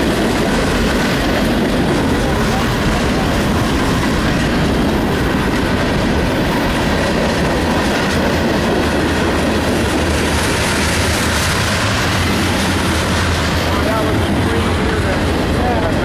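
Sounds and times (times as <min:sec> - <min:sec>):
train wheels running on rails: 0:00.0 - 0:16.0.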